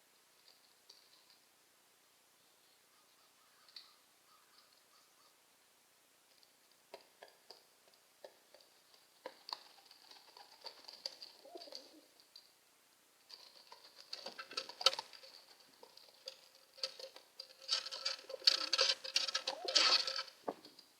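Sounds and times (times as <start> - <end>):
pigeon scuffling and clicking: 6.3 - 12.5, 13.3 - 20.9
pigeon cooing: 11.1 - 12.2, 17.8 - 20.7.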